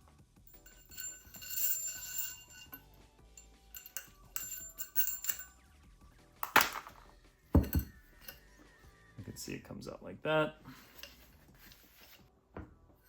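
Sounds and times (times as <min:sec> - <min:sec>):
bell-like metallic ring: 0:00.5 - 0:05.6
light metal clinks: 0:00.5 - 0:05.6, 0:07.6 - 0:08.6
metal parts knocking together: 0:03.8 - 0:05.5, 0:06.4 - 0:08.4.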